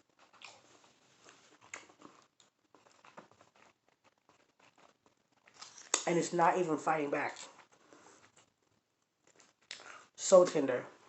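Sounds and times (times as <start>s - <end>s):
chewing mouth clicks and smacks: 0.1s - 6.1s, 9.2s - 10.0s.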